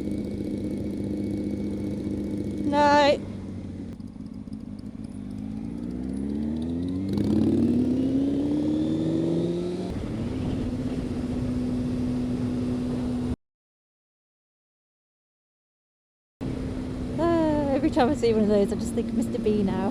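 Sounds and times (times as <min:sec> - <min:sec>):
motorcycle engine accelerating: 0:00.0 - 0:13.4, 0:16.4 - 0:19.9.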